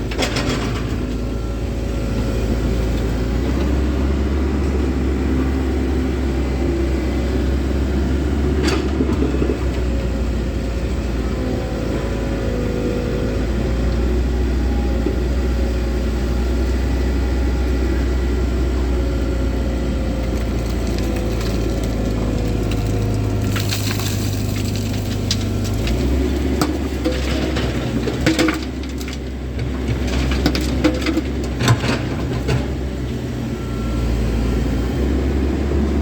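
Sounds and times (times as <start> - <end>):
excavator diesel engine running: 0.0 - 36.0
bucket scraping soil and stones: 20.4 - 32.4.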